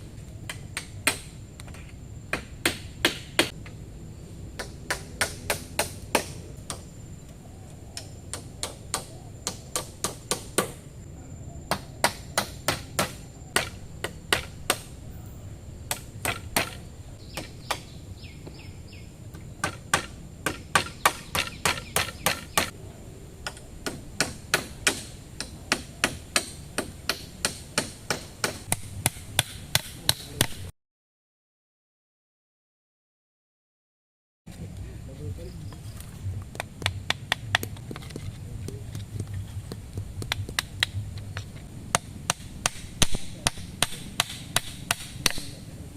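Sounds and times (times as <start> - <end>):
steady low rumble: 3.5 - 9.3, 34.5 - 45.9
blade chopping wood: 15.9 - 16.8, 19.6 - 22.7, 25.7 - 30.7, 36.6 - 45.6.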